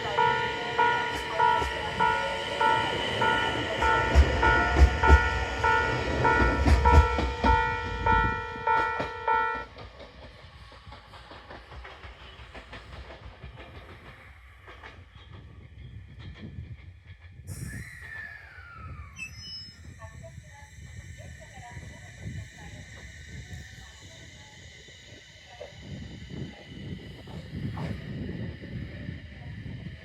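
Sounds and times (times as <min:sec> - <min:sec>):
ringing crossing signal: 0:00.0 - 0:09.7
train brake squeal: 0:00.0 - 0:09.8, 0:17.5 - 0:28.3
train wheels clattering over rails: 0:00.0 - 0:17.5.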